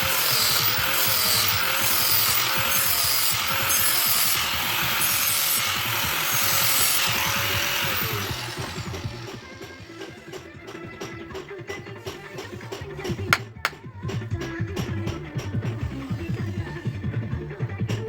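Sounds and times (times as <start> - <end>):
electric power tool grinding: 0.0 - 10.6
background music: 3.9 - 18.0.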